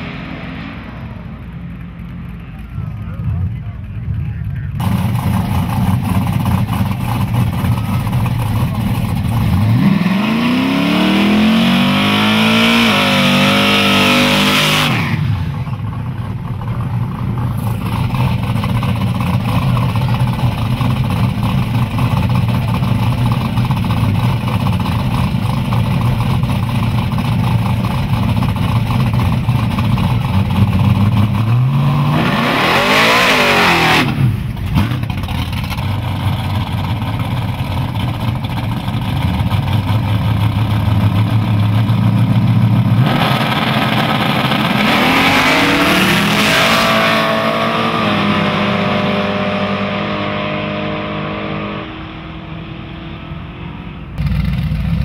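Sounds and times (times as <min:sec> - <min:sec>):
engine revving up: 0:00.0 - 0:01.6, 0:09.2 - 0:15.6, 0:30.6 - 0:35.2, 0:43.0 - 0:55.0
drag car engines running: 0:00.0 - 0:55.0
cars accelerating hard away: 0:04.8 - 0:15.8, 0:29.6 - 0:35.4, 0:41.0 - 0:55.0.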